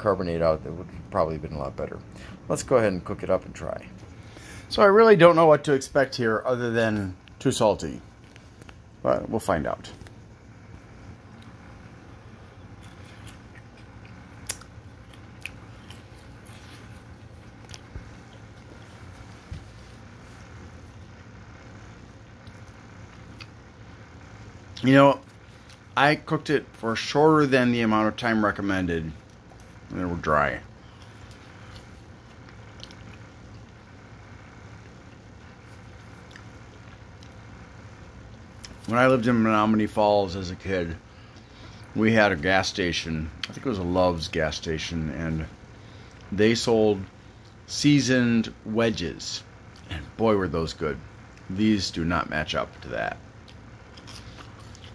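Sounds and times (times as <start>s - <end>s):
low room hum: 0.0s - 54.9s
crunching fries: 12.5s - 21.0s, 28.1s - 33.9s, 34.8s - 37.5s, 38.2s - 40.0s, 52.7s - 54.9s.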